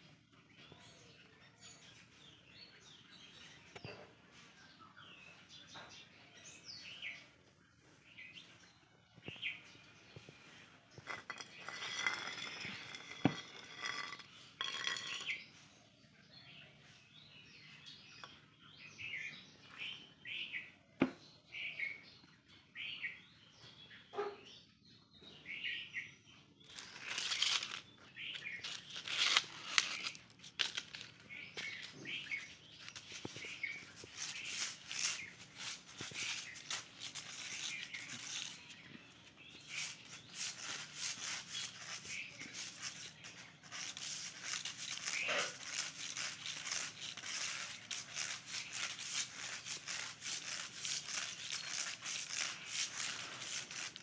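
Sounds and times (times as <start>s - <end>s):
small birds chirping: 0.0s - 54.0s
scratchy rustling: 9.4s - 15.4s, 26.7s - 54.0s.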